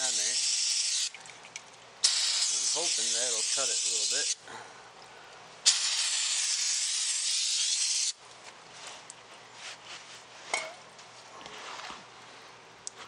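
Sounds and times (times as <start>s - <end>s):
aerosol can spraying hiss: 0.0s - 1.1s, 2.0s - 4.4s, 5.6s - 8.2s.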